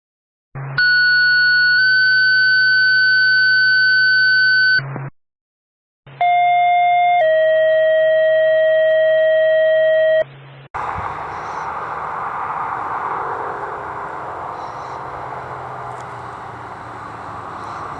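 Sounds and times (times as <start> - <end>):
outdoor noise: 8.9 - 17.9
hum: 10.8 - 17.9.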